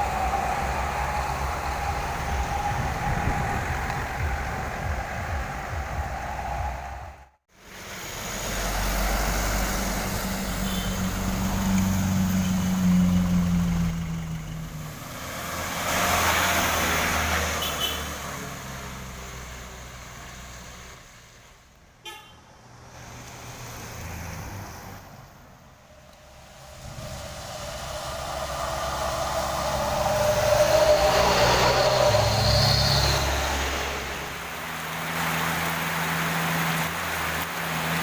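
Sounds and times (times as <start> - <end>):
tyre and road noise: 0.0 - 38.0
horn toots: 10.5 - 11.2, 17.5 - 18.2, 22.0 - 22.5.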